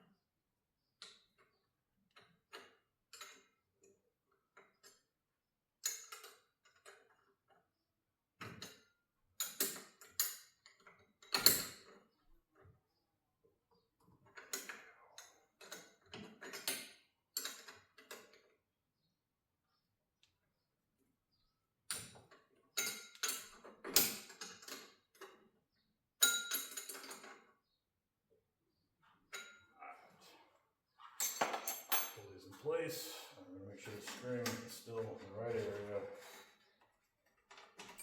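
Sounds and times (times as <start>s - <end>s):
metal tools clicking and clinking: 26.2s - 27.5s, 31.1s - 32.2s.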